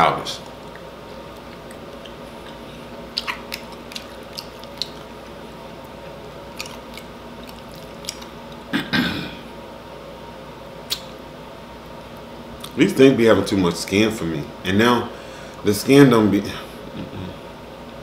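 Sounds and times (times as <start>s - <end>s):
wet mouth smacks and chewing: 0.5s - 5.4s, 6.5s - 8.7s, 10.9s - 11.1s.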